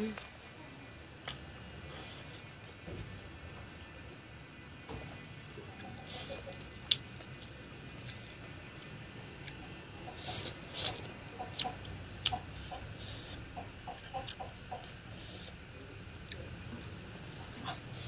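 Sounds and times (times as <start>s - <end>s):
wet chewing and lip smacking: 9.4s - 15.5s.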